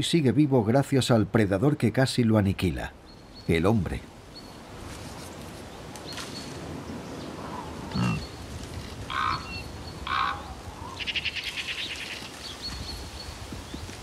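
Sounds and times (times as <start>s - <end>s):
harsh bird calls: 6.1s - 13.8s.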